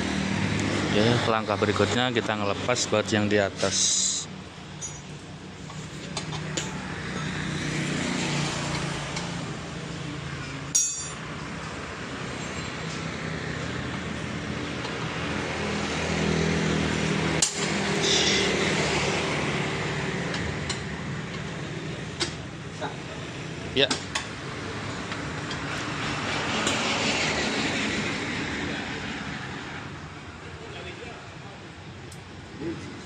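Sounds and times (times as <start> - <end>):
engine and road noise: 0.0 - 33.0
wrench clinking on metal bolts: 4.8 - 5.2, 10.7 - 11.2.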